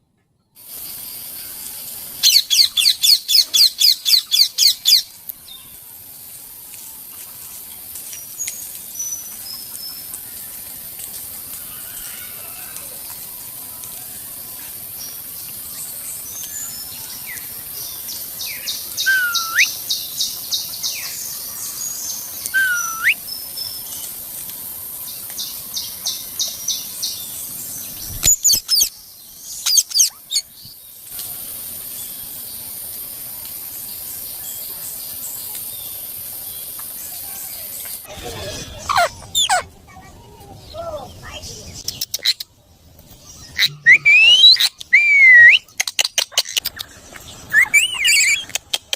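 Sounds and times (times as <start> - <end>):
parrot chirping and whistling: 19.0 - 19.7, 22.5 - 23.2, 38.9 - 39.6, 43.6 - 45.7, 47.5 - 48.4.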